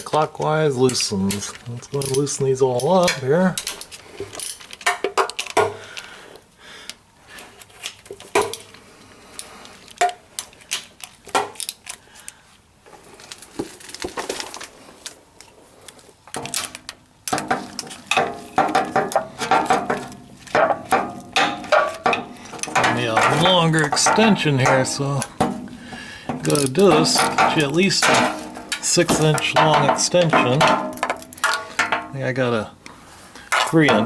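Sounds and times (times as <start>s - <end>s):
metal tools clinking: 0.1s - 5.6s, 16.3s - 32.7s, 33.3s - 34.0s.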